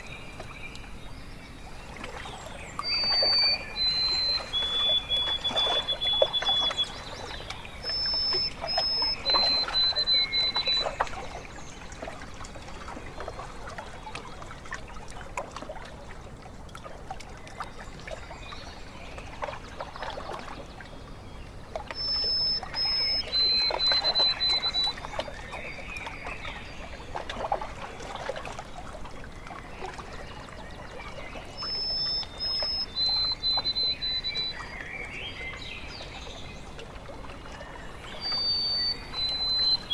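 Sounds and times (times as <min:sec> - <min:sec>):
bird whistling song: 0:00.0 - 0:11.2, 0:21.9 - 0:25.8, 0:31.4 - 0:36.2, 0:38.0 - 0:39.9
small waves lapping: 0:00.0 - 0:39.9.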